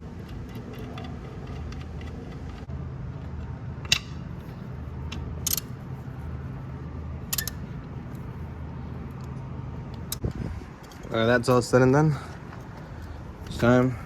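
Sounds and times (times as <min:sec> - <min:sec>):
steady low hum: 0:00.0 - 0:14.0
ratchet clicking: 0:05.1 - 0:05.7, 0:07.3 - 0:07.6.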